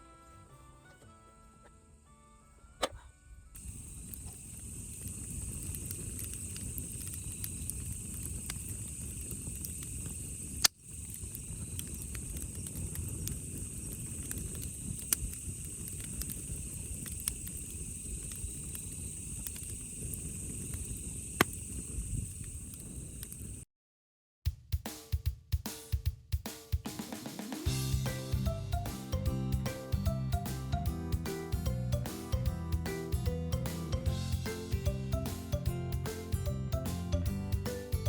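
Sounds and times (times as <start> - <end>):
sharp pops from fire: 3.6 - 23.5
wood fire crackling: 3.6 - 23.6.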